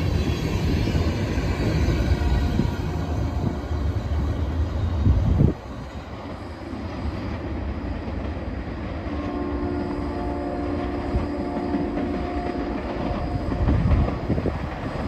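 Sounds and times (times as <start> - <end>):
freight train rumbling: 0.0 - 15.0
train wheel thumps: 11.6 - 15.0.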